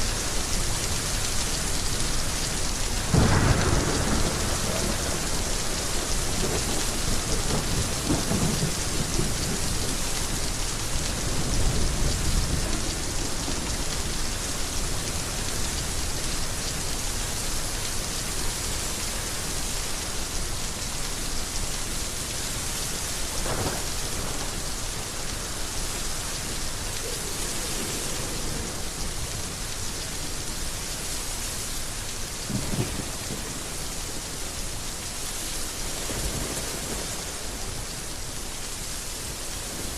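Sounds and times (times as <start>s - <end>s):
heavy rain falling: 0.0s - 39.9s
low thunder rumbles: 3.0s - 14.0s, 23.3s - 25.5s, 27.1s - 29.7s, 32.5s - 34.4s.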